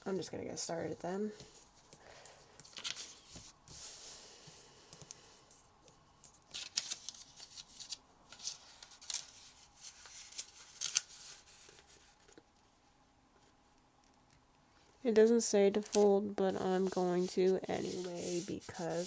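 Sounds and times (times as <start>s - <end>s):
paper rustling and creasing: 2.6s - 4.7s, 6.2s - 12.4s, 15.8s - 19.0s.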